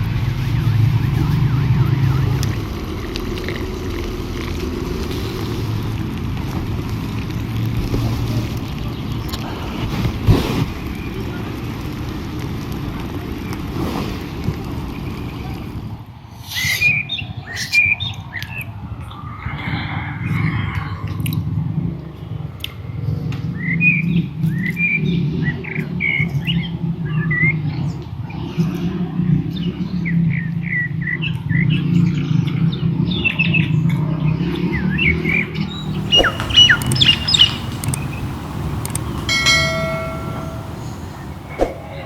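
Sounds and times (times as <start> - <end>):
birds chirping and squawking: 35.7 - 42.0
short pitched tone: 37.4 - 42.0.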